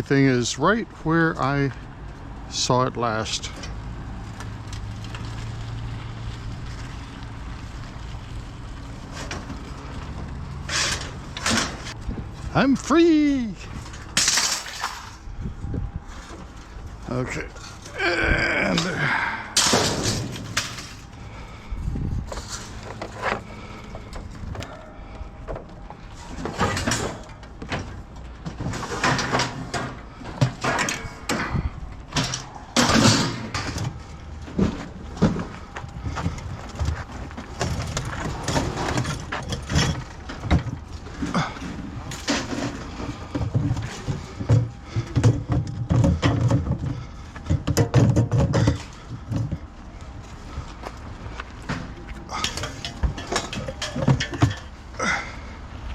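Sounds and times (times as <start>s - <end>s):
knocks and clanks of handled objects: 22.3s - 49.8s, 50.6s - 55.2s.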